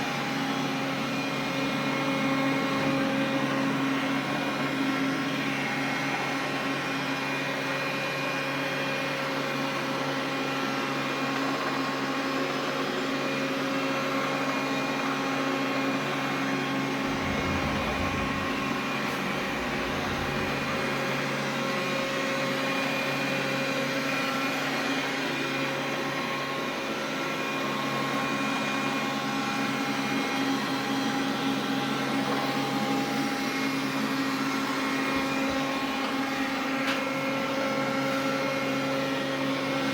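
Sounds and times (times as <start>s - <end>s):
vacuum cleaner running: 0.0s - 39.9s
low rumble: 16.8s - 21.6s.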